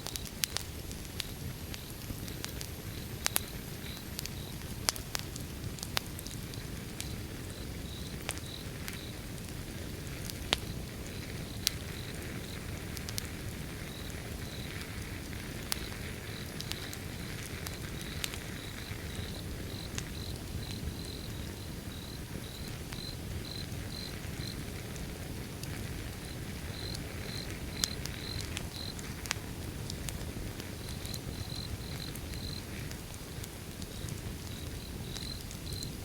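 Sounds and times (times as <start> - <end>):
wood fire crackling: 0.0 - 36.0
cricket chirping: 2.9 - 4.6, 7.0 - 9.2, 13.8 - 14.9, 15.5 - 24.7, 26.2 - 29.0, 30.7 - 32.7, 33.9 - 36.0.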